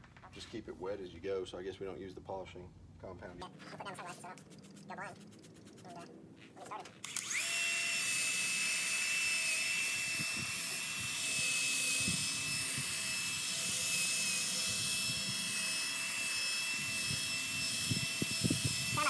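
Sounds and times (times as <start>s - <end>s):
power drill whining: 7.0s - 19.0s.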